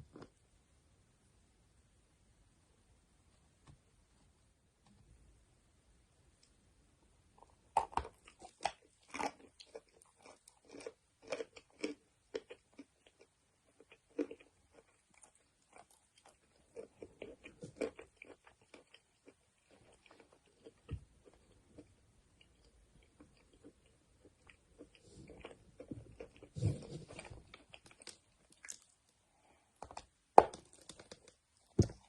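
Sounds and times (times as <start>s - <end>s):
crunchy chewing of chalk: 7.8s - 29.0s.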